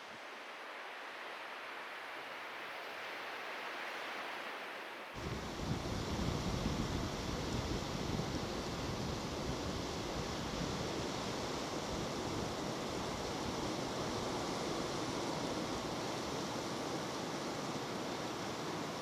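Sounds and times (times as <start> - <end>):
rain: 0.0 - 19.0
strong wind: 5.2 - 19.0.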